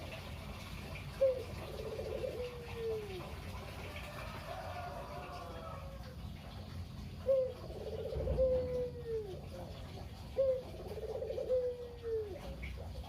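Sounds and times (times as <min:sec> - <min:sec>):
dove cooing: 0:01.1 - 0:03.4, 0:07.2 - 0:13.0.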